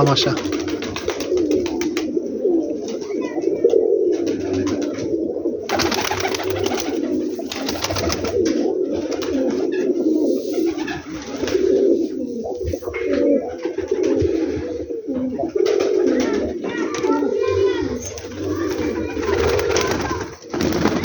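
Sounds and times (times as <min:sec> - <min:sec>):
pigeons cooing: 0:00.0 - 0:21.0
rustling: 0:17.9 - 0:21.0.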